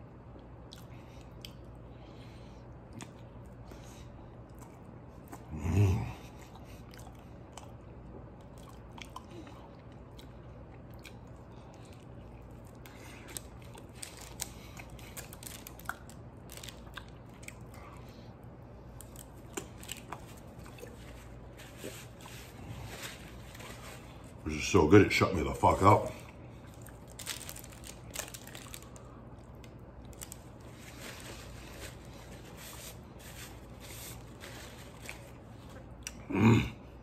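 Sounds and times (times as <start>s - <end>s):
man chewing food: 0.3s - 24.4s.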